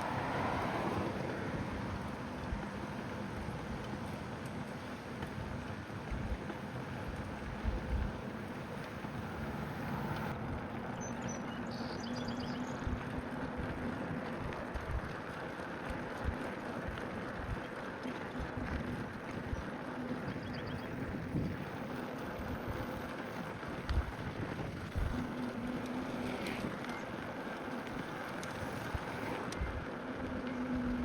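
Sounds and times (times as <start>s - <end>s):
steady rushing noise: 0.0s - 11.3s, 12.6s - 31.0s
wind buffeting microphone: 18.3s - 30.0s.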